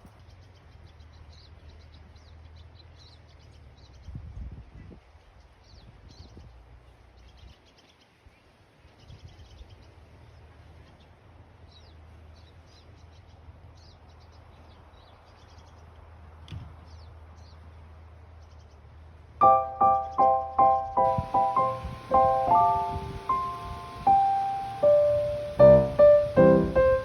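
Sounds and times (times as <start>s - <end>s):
songbirds twittering: 0.0s - 4.3s, 4.9s - 17.7s, 18.4s - 27.0s
piano music: 19.4s - 27.0s.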